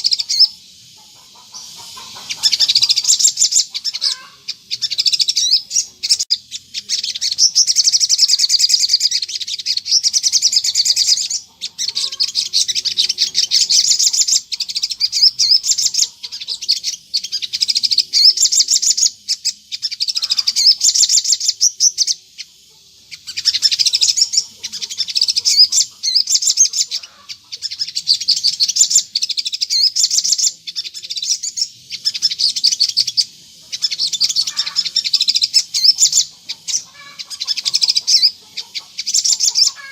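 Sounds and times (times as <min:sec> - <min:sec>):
bird twittering: 0:00.0 - 0:39.9.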